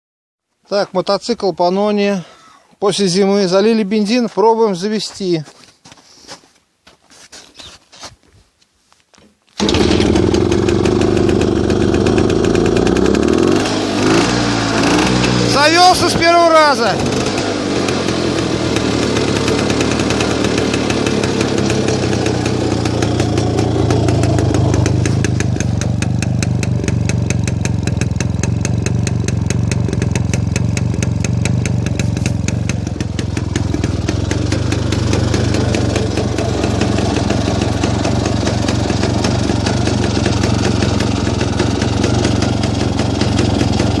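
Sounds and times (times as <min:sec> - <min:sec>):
motorcycle engine idling: 0:09.6 - 0:44.0.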